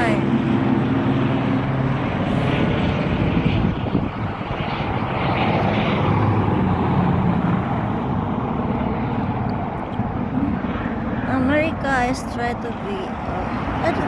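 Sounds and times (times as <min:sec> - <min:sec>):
aircraft engine droning: 0:00.0 - 0:14.0.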